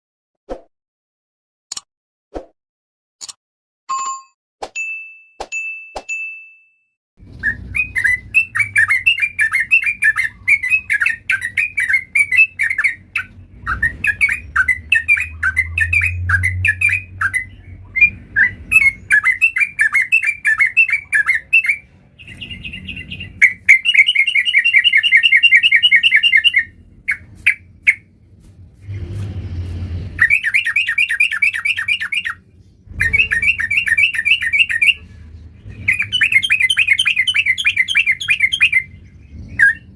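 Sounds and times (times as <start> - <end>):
bulbul bubbly chattering song: 7.4 - 28.1, 30.2 - 35.0.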